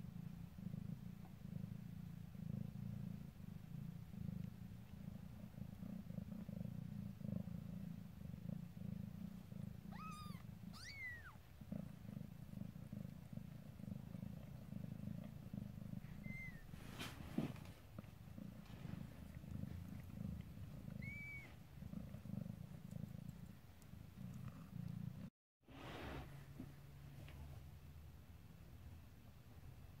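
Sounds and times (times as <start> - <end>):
cat purring: 0.0 - 30.0
kitten squeaky mews: 9.9 - 11.4, 16.1 - 16.7, 21.0 - 21.6.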